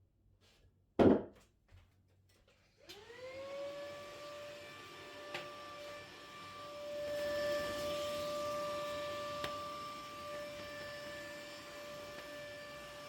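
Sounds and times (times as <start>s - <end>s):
vacuum cleaner motor whining: 2.8s - 13.0s.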